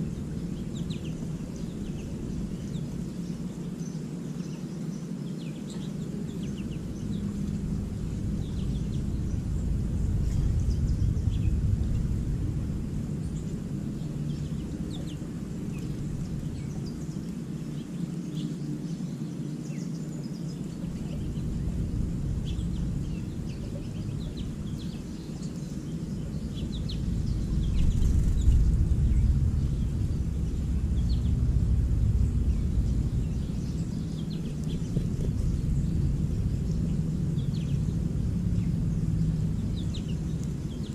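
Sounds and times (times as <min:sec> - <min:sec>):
low rumble: 0:00.0 - 0:04.0, 0:05.7 - 0:19.0, 0:20.1 - 0:40.9
songbirds chirping: 0:00.0 - 0:40.9.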